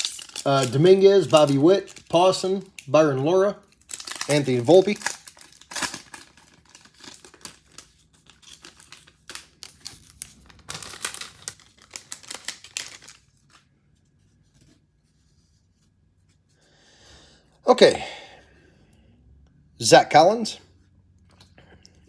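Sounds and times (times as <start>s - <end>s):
cards and wrapper rustling: 0.0s - 13.7s.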